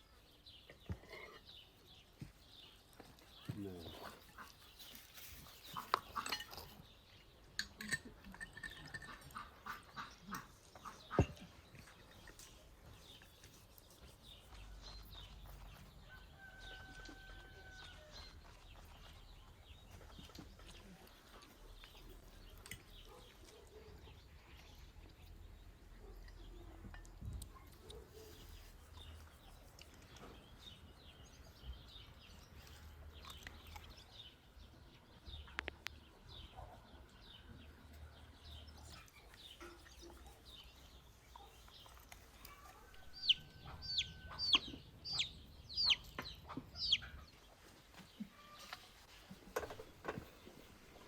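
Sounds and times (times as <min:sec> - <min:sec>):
chickens clucking: 0:03.6 - 0:06.8, 0:07.7 - 0:12.6, 0:41.9 - 0:51.0.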